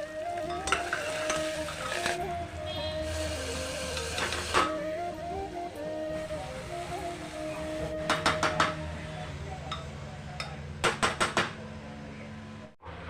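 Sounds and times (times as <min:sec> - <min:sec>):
soft background music: 0:00.0 - 0:10.3
metal utensils clinking on pan: 0:00.4 - 0:02.2.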